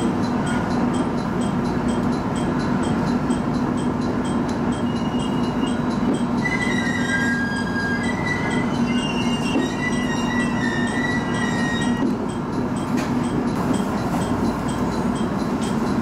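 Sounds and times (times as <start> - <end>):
train running on rails: 0.0 - 16.0
high wheel squeal: 4.7 - 12.2.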